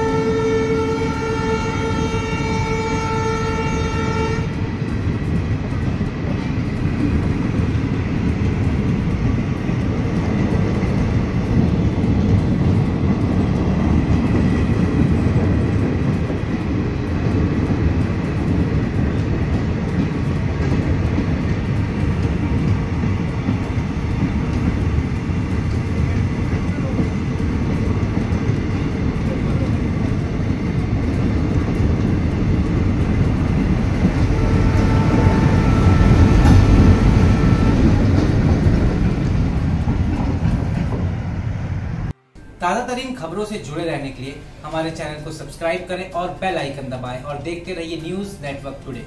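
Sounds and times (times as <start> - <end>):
train horn: 0.0 - 4.6, 34.0 - 38.3
train coaches rumbling past: 0.0 - 49.0.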